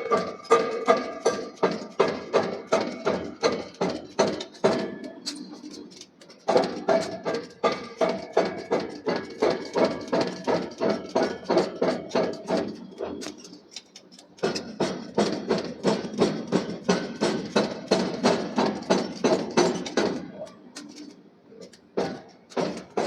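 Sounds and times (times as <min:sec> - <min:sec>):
hammer striking steel: 0:00.0 - 0:05.5, 0:14.4 - 0:21.1, 0:22.0 - 0:23.0.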